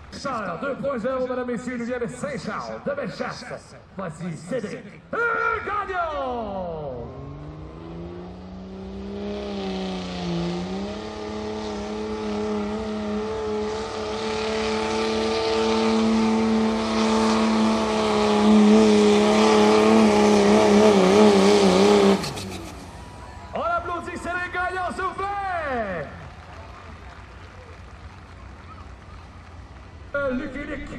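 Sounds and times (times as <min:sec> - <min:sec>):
diesel truck engine at high revs: 0:06.6 - 0:30.9.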